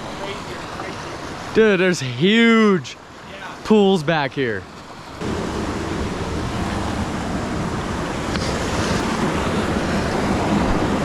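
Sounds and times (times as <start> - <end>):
waterfall rushing: 5.2 - 11.0.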